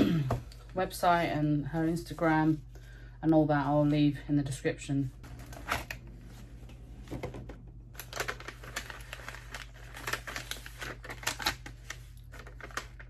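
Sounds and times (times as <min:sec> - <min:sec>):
packaging crinkling and rustling: 0:05.2 - 0:13.0.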